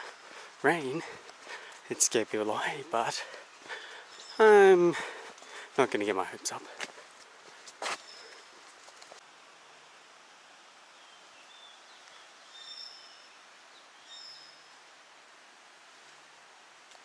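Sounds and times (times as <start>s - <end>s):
birds chirping: 0.0s - 9.0s, 10.9s - 14.8s
faint outdoor hiss: 0.0s - 17.0s.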